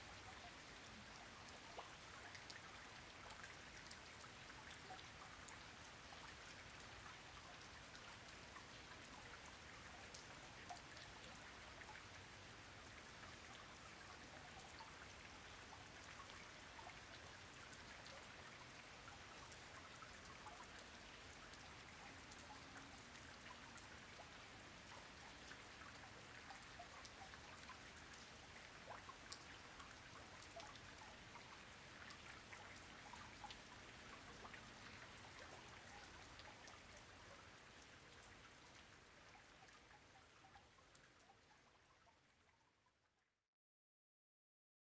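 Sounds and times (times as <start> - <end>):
faint rain falling: 0.0 - 42.6
raindrop ticks: 10.1 - 11.1, 25.4 - 37.1.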